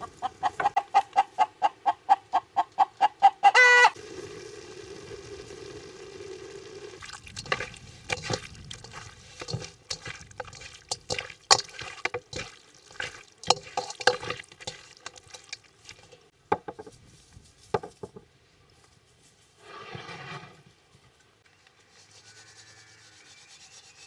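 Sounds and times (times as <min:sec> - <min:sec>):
spoon scraping a cooking pot: 0:07.1 - 0:16.8.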